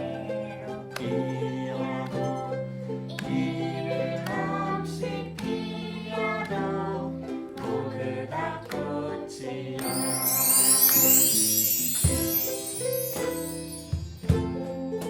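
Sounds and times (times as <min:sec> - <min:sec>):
ukulele ensemble strumming: 0:00.0 - 0:15.0
bright shimmering high sound: 0:09.8 - 0:14.4.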